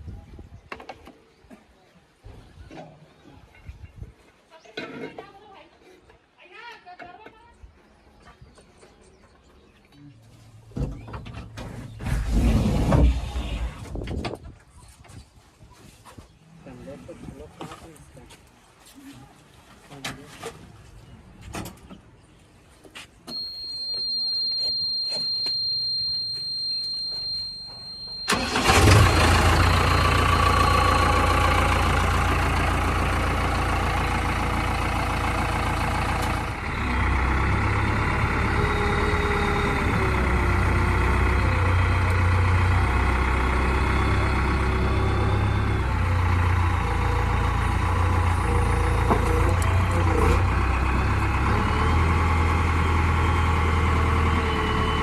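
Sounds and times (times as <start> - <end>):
steady high-pitched tone: 23.3 - 28.3
diesel engine running: 23.4 - 55.0.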